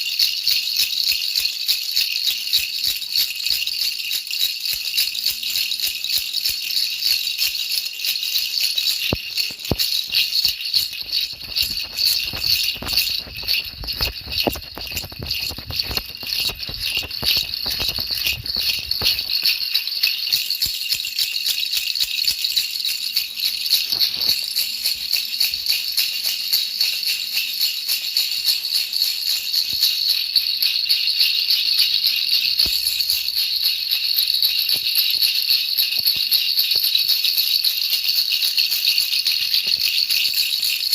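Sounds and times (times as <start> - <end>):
baby rattle jingling: 0.0 - 40.9.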